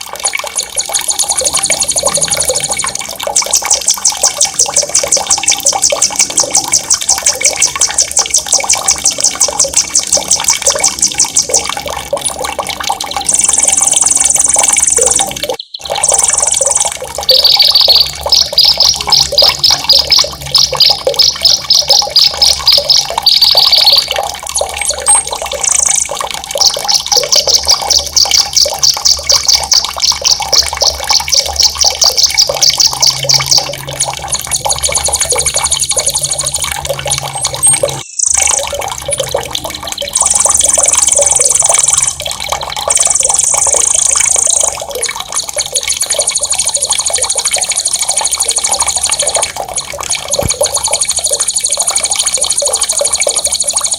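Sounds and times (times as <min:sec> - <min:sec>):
running water: 0:00.0 - 0:53.9
songbird trilling: 0:13.3 - 0:20.2, 0:20.8 - 0:24.1, 0:25.1 - 0:26.1, 0:37.7 - 0:38.6, 0:42.9 - 0:44.7.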